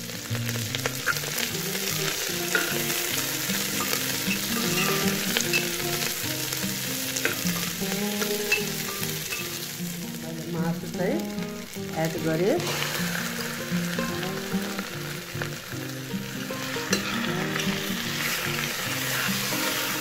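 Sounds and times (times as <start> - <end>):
food sizzling in oil: 0.0 - 20.0
simple tune: 0.0 - 20.0
metal ladle scraping pot: 3.8 - 6.1, 16.6 - 20.0.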